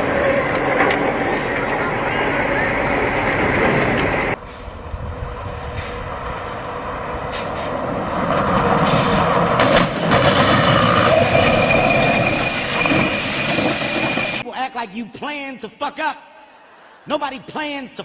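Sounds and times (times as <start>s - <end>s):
vehicle running noise: 0.0s - 14.4s.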